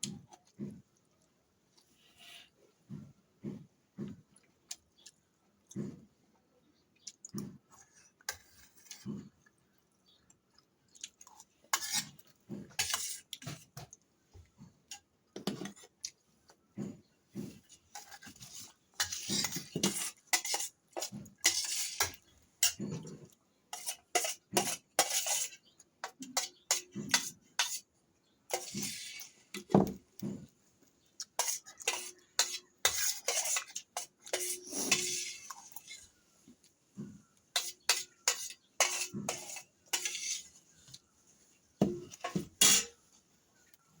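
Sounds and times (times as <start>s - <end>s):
cutlery clinking on a plate: 19.0s - 27.8s, 28.5s - 30.5s, 31.4s - 36.0s, 37.5s - 40.5s, 41.8s - 43.0s.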